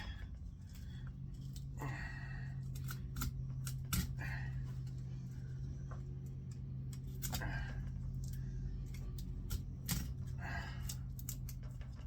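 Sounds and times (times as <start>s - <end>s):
steady low hum: 0.0s - 12.0s
small clicks and scrapes: 8.0s - 12.0s.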